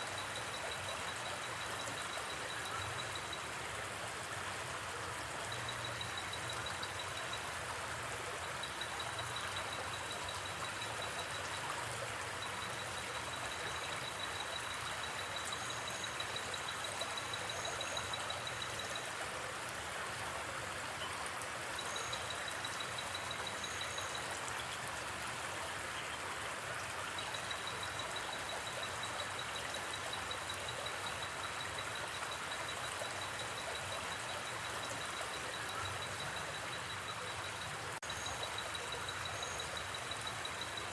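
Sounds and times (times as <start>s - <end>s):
insect pulsed trill: 0.0s - 3.5s, 8.3s - 19.1s, 21.8s - 24.3s, 27.2s - 40.9s
insect short high chirps: 27.2s - 40.9s.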